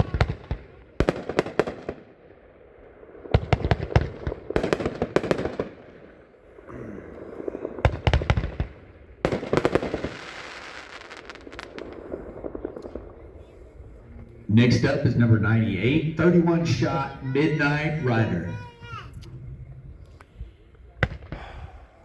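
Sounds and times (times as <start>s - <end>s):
firework bangs: 0.0s - 14.1s, 21.0s - 21.9s
firework crackling: 0.0s - 14.1s.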